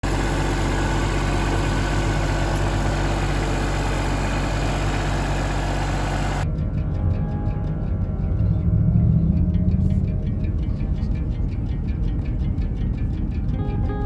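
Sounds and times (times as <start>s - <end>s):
heavy engine idling: 0.0s - 6.4s.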